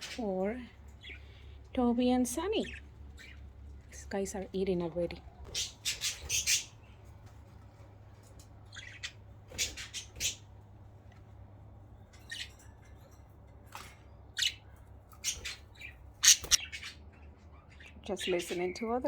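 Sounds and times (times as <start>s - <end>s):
budgies squawking and chirping: 0.9s - 1.6s, 2.4s - 3.8s, 5.4s - 7.1s, 8.6s - 10.6s, 12.2s - 12.7s, 14.3s - 19.0s.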